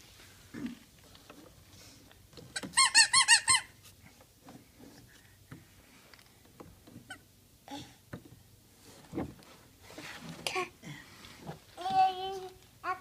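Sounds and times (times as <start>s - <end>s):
toy car horn squeaking: 2.6s - 3.7s.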